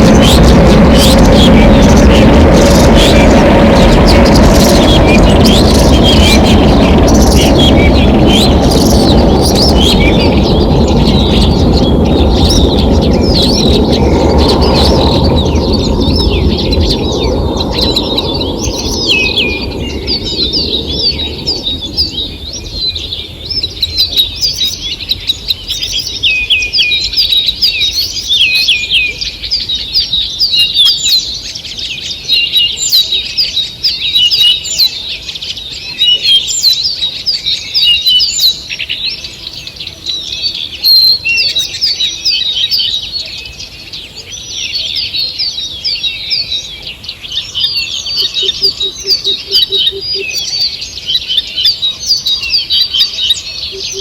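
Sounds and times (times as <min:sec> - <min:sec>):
loud low rushing noise: 0:00.0 - 0:24.2
songbirds singing and chirping: 0:00.0 - 0:54.0.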